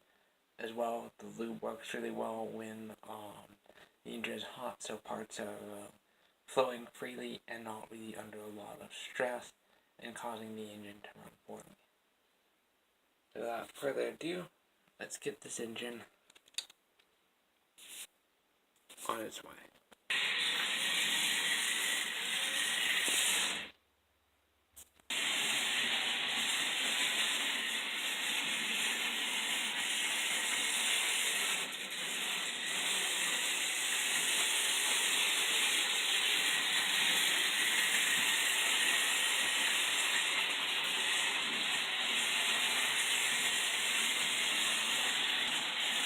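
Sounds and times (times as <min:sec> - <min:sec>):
model train motor running: 0:20.1 - 0:23.7, 0:25.1 - 0:46.0.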